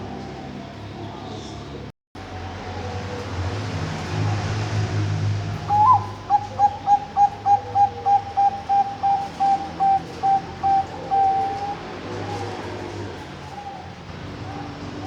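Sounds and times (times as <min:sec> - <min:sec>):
dove cooing: 0:05.7 - 0:15.0.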